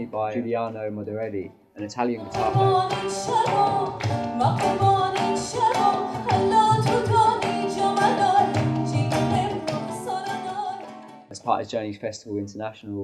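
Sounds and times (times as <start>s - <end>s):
woman singing: 2.1s - 11.2s
plucked acoustic guitar: 2.2s - 11.3s.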